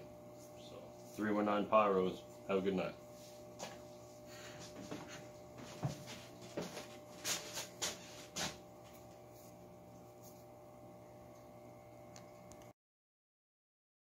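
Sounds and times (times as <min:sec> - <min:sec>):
low room hum: 0:00.0 - 0:12.7
light knocks and rustles: 0:04.5 - 0:08.6.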